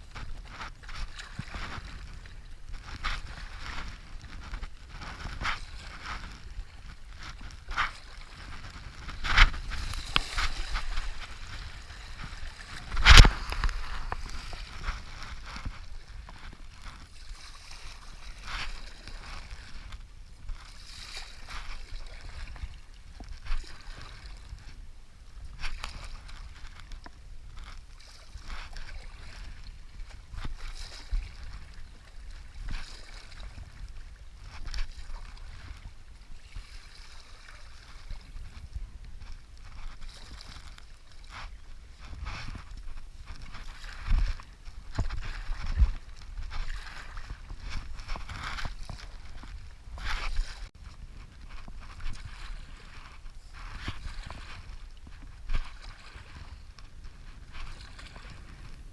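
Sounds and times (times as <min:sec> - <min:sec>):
paddle strokes splashing: 0:00.0 - 0:58.9.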